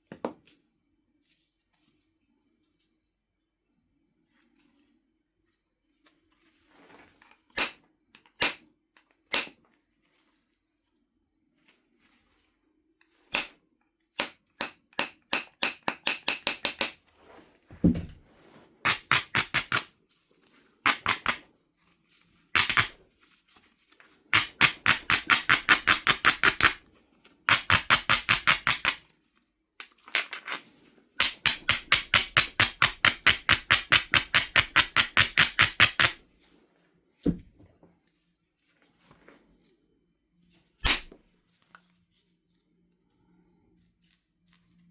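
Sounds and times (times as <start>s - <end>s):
stone knocks: 17.7s - 18.2s.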